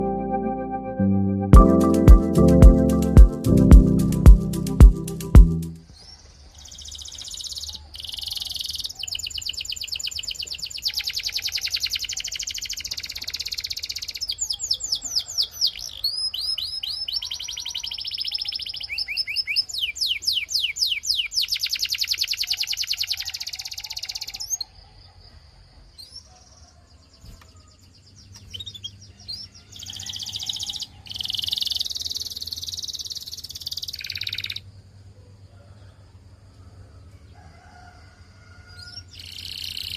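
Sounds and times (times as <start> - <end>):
canary singing trills: 5.9 - 24.7, 28.4 - 34.6, 38.8 - 39.9.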